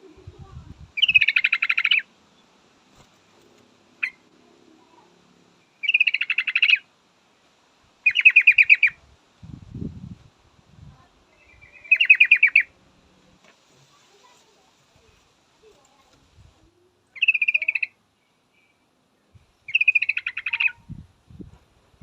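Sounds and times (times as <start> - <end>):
bird chattering calls: 1.0 - 2.1, 4.0 - 4.2, 5.8 - 6.8, 8.0 - 9.0, 11.4 - 12.7, 17.1 - 18.0, 19.7 - 20.8.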